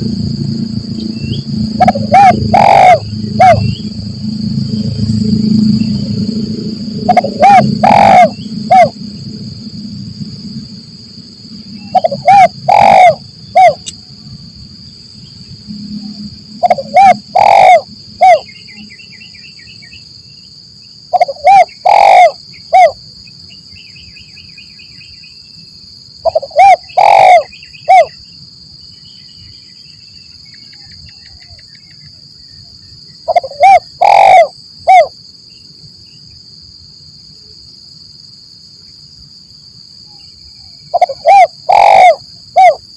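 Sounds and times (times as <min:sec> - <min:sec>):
high insect drone: 0:00.0 - 0:42.9
dove cooing: 0:01.8 - 0:03.8, 0:07.0 - 0:09.0, 0:11.8 - 0:13.9, 0:16.6 - 0:18.5, 0:21.1 - 0:23.0, 0:26.2 - 0:28.1, 0:33.3 - 0:35.1, 0:40.9 - 0:42.8
faint small-bird chirps: 0:28.9 - 0:32.9.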